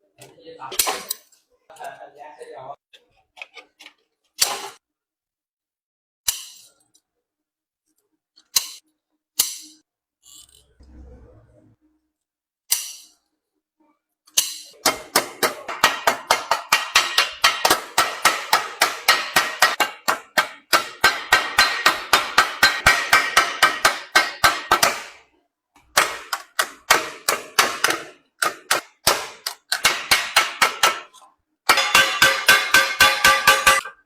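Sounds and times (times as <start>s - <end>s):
hammer striking copper sheet: 12.7s - 13.1s, 14.4s - 25.3s, 25.9s - 34.0s.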